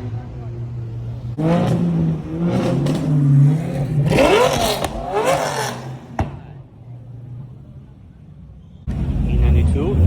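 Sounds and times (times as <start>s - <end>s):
car engine idling and revving: 0.0s - 10.0s.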